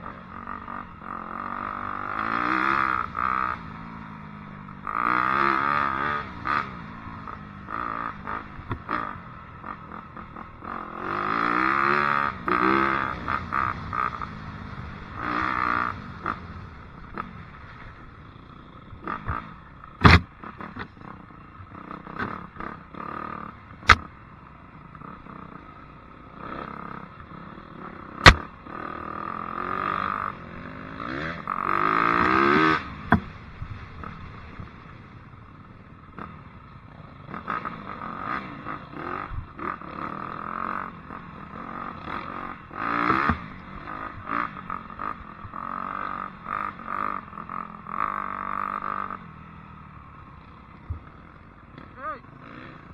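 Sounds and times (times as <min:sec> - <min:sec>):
dirt bike engine revving: 0:19.2 - 0:21.0, 0:23.9 - 0:24.1, 0:30.8 - 0:33.4, 0:41.6 - 0:45.2
sharp loud knocks: 0:20.0 - 0:20.3, 0:28.2 - 0:28.5, 0:33.1 - 0:33.3.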